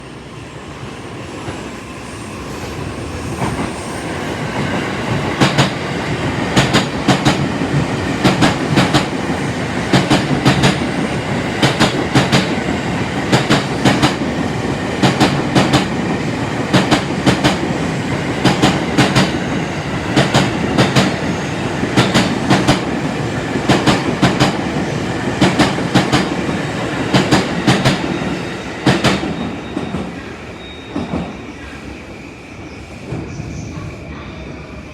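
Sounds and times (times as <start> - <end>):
train rumble: 2.4 - 30.3
train wheels clicking over rail joints: 5.1 - 9.2, 9.8 - 14.3, 14.9 - 16.0, 21.9 - 23.0.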